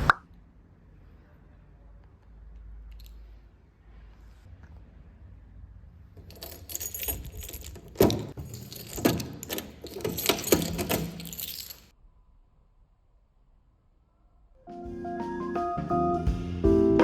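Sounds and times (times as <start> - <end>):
small metal objects jangling: 6.2 - 11.9.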